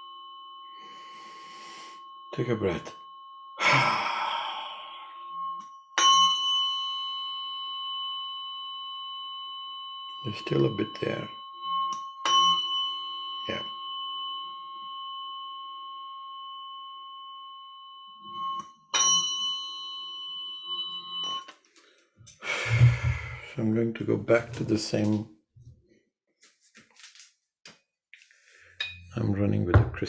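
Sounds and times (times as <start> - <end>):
tuning fork ringing: 0.0 - 24.7, 28.8 - 30.0
long breath: 0.8 - 2.1, 3.6 - 5.4, 21.7 - 23.6, 28.3 - 28.9.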